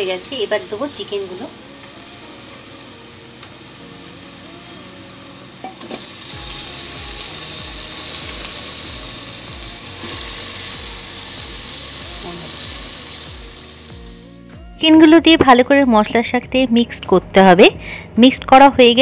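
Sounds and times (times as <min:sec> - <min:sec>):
masala sizzling in hot oil: 0:00.0 - 0:14.4.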